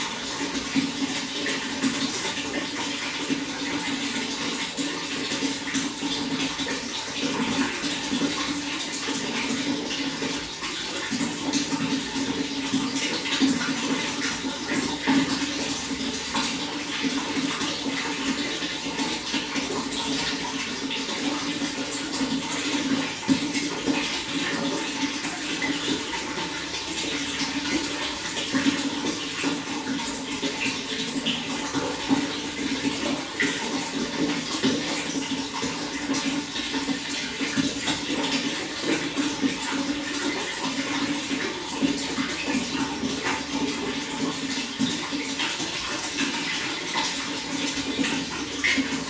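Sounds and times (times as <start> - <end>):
running water: 0.0 - 49.0.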